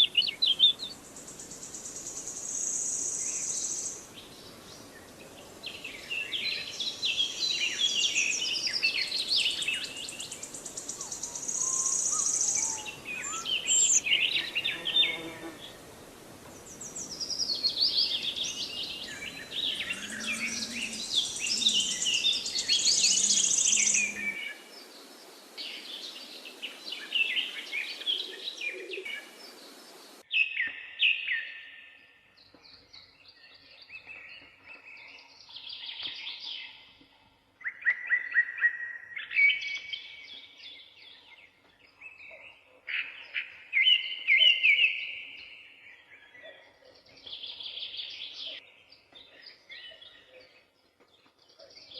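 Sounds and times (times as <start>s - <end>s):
songbirds chirping and singing: 0.0s - 15.8s, 16.4s - 37.1s, 37.7s - 51.9s.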